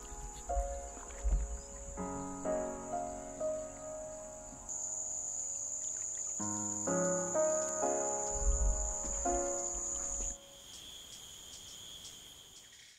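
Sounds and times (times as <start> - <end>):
musical chords: 0.0 - 5.8
high-pitched insect trill: 0.0 - 12.9
low-pitched insect trill: 0.0 - 12.9.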